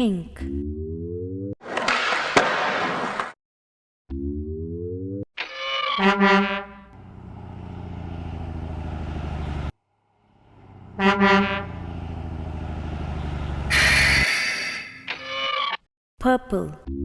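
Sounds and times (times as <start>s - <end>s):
truck horn honking: 6.0s - 7.0s, 10.4s - 12.6s, 13.2s - 14.5s
diesel engine rumble: 6.9s - 14.4s
burst of hiss: 13.7s - 14.9s.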